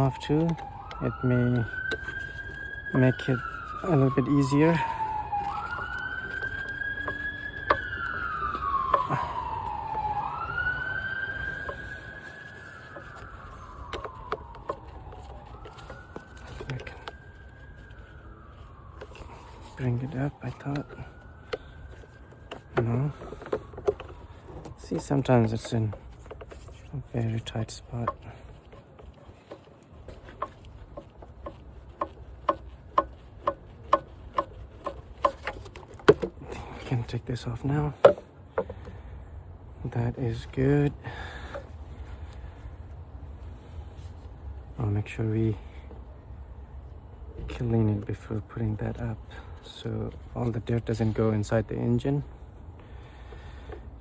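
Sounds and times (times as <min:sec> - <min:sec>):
emergency siren wailing: 0:00.0 - 0:39.0.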